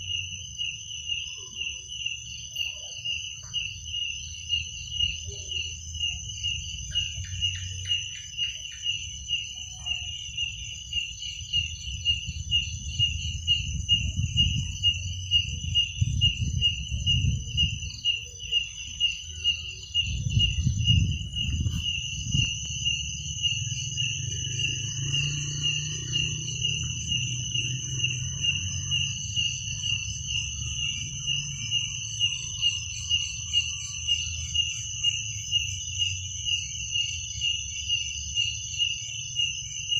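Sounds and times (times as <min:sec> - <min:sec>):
cricket chirping: 0:00.0 - 0:39.9
high insect trill: 0:00.0 - 0:39.9
low rumble: 0:20.0 - 0:31.7.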